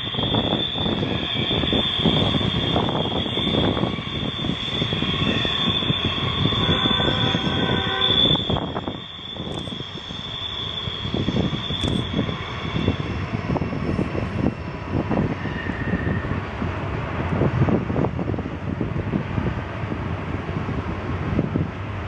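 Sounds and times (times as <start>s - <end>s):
high wheel flange squeal: 0.0s - 16.5s
low rumble of wheels on rail: 0.0s - 22.0s.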